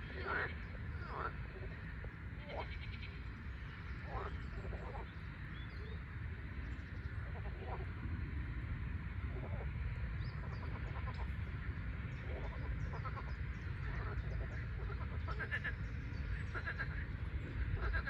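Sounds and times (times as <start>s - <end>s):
frogs croaking: 0.0s - 18.0s
steady low rumble: 0.0s - 18.0s.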